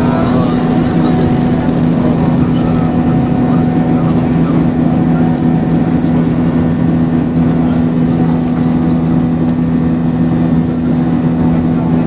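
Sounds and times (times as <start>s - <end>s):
airliner cabin engine drone: 0.0s - 12.0s.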